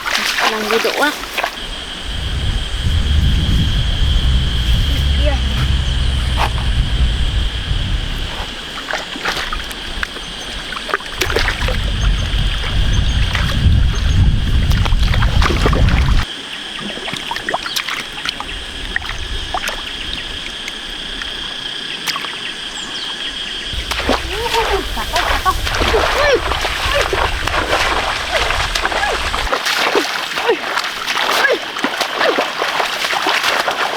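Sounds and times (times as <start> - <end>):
wading through muddy water: 0.0 - 23.0, 23.7 - 33.9
low rumble: 1.7 - 8.6.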